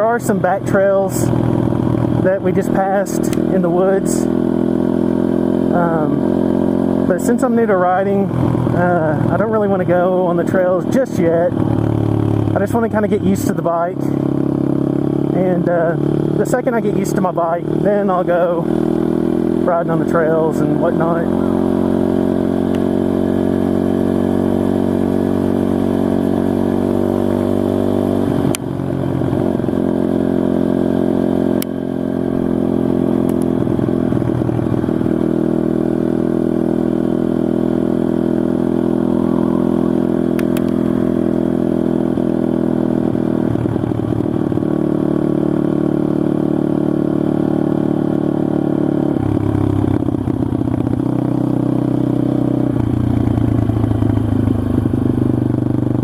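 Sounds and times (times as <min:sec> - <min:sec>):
motorcycle engine running: 0:00.0 - 0:56.0
sharp clicks: 0:33.2 - 0:33.5, 0:40.3 - 0:40.9.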